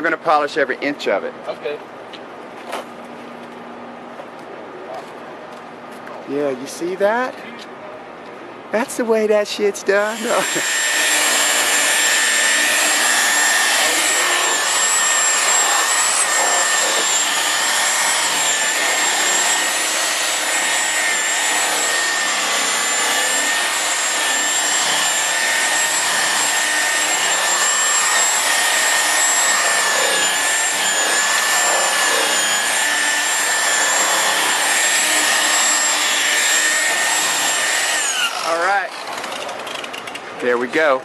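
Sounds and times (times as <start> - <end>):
electric polisher motor whine: 10.2 - 39.2.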